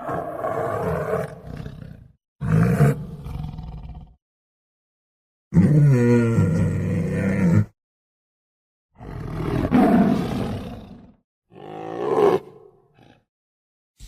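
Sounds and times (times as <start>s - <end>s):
tiger roaring: 0.0s - 4.2s, 9.0s - 13.2s.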